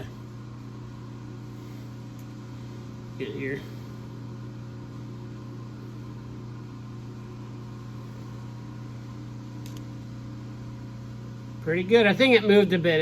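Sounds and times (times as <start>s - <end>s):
light click: 9.6s - 9.9s.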